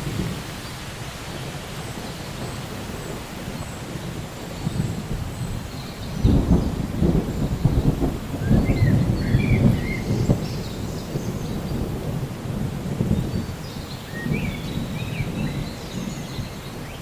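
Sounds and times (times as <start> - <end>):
crackling thunder rumble: 0.0 - 17.0
steady rain: 0.0 - 17.0.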